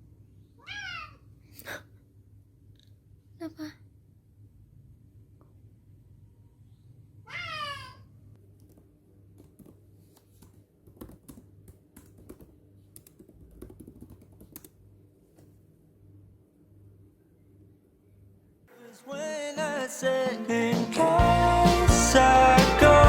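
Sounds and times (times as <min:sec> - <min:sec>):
cat meowing: 0:00.6 - 0:01.2, 0:07.2 - 0:08.1.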